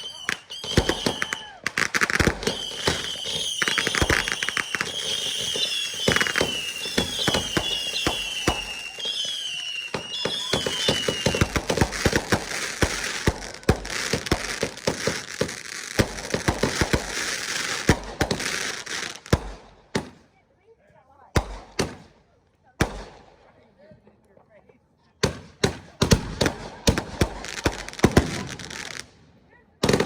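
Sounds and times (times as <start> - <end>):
falling firework whistles: 0.0 - 15.3
firework crackle: 0.0 - 19.6
fireworks bangs: 0.0 - 20.2, 25.2 - 29.2.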